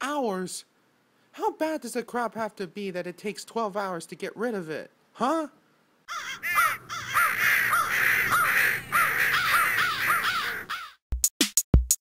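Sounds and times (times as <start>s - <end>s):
crows cawing: 6.1s - 11.0s.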